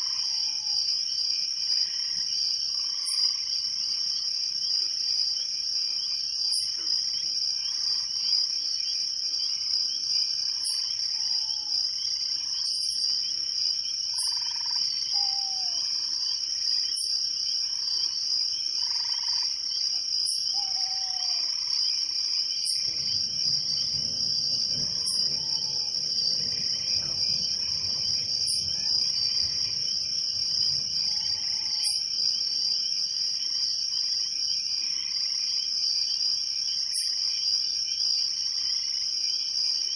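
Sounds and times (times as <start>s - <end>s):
crickets trilling: 0.0s - 39.9s
low rushing wind: 22.8s - 31.5s.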